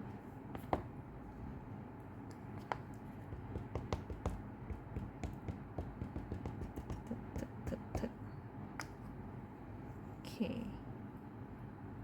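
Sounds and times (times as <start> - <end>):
rubber stamp tapping ink pad: 0.6 - 0.9, 2.6 - 8.1.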